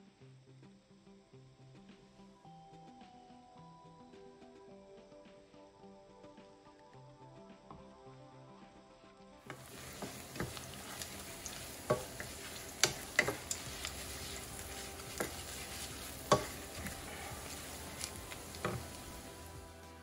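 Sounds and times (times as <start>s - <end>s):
food sizzling in a pan: 9.5s - 20.0s
utensil knocking against pan: 9.6s - 19.3s.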